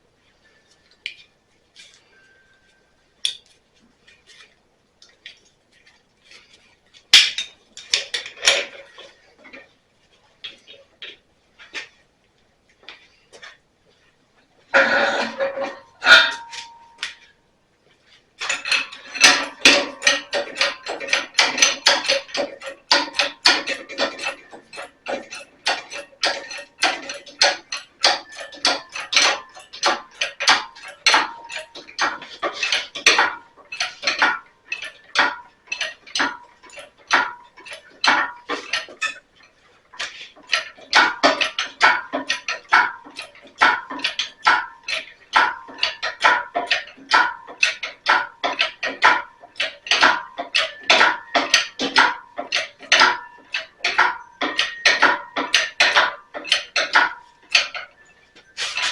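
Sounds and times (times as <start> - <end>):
metal tools clanking: 14.8 - 17.3, 18.4 - 58.9.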